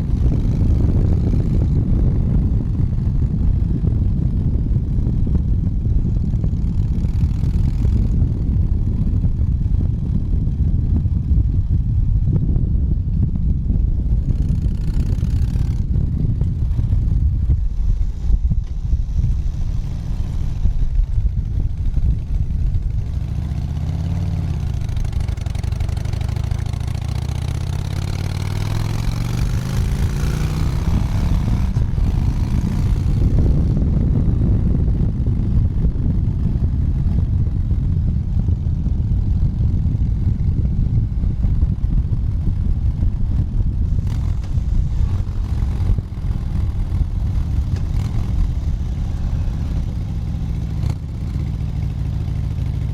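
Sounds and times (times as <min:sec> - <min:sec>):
motorcycle engine running: 0:00.0 - 0:52.9
wind and road noise: 0:00.0 - 0:52.9.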